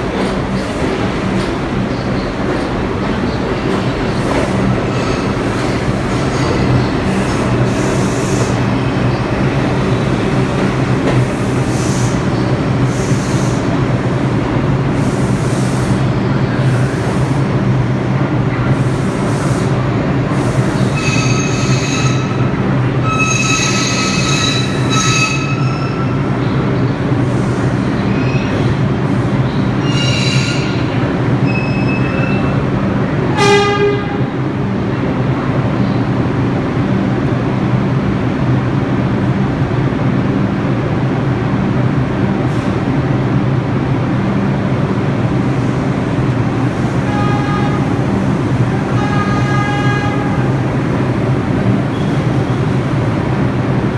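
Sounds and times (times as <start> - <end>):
subway train rumbling: 0.0 - 53.9
metal squealing on rails: 3.3 - 9.8, 20.6 - 26.4, 27.4 - 28.8, 29.5 - 32.7, 51.9 - 52.6.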